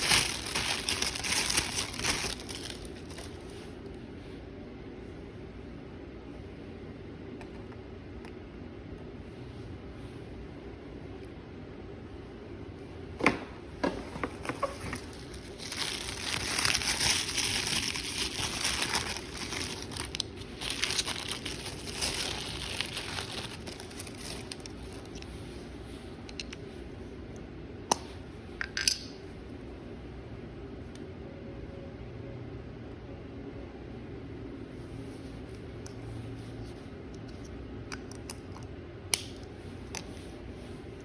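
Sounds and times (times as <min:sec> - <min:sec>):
packaging crinkling: 0:00.0 - 0:03.5, 0:14.0 - 0:25.2.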